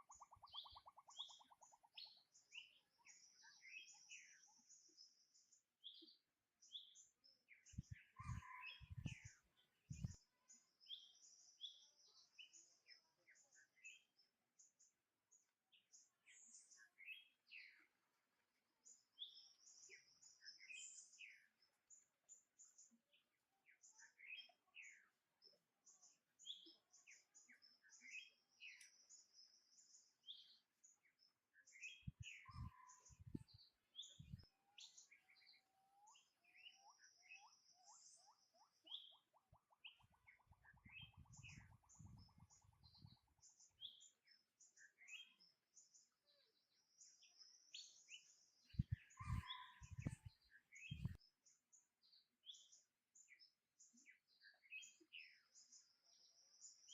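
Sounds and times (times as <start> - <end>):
bird trill: 0.0 - 4.3, 8.1 - 9.3, 31.8 - 33.4, 34.0 - 45.5, 48.8 - 51.2
birds chirping: 0.0 - 18.1, 18.8 - 56.9.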